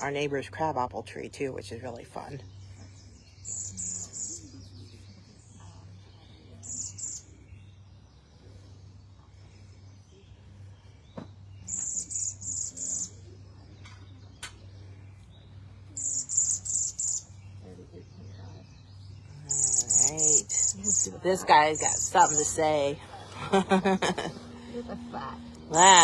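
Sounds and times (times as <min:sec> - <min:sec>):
bird giving high trilled whistles: 0:11.7 - 0:13.2, 0:16.0 - 0:17.3.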